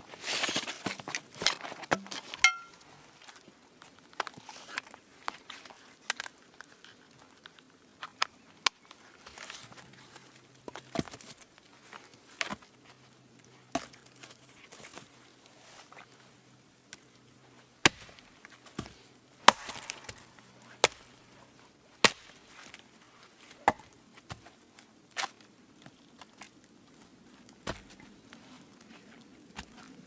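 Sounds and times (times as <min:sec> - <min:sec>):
wood being chopped: 0:01.9 - 0:02.8, 0:17.8 - 0:21.1, 0:22.0 - 0:22.4, 0:23.6 - 0:24.0.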